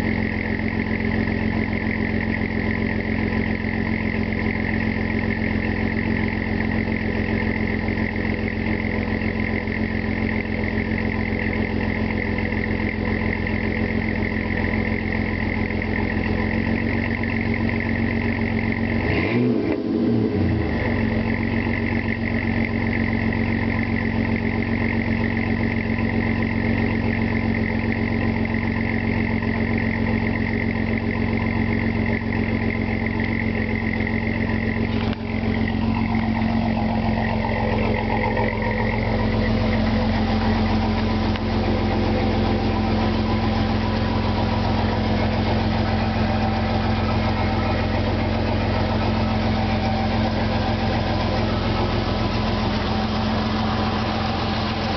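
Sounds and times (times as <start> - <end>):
truck engine idling: 0.0 - 19.4, 20.4 - 54.9
high steady whine: 30.8 - 54.9.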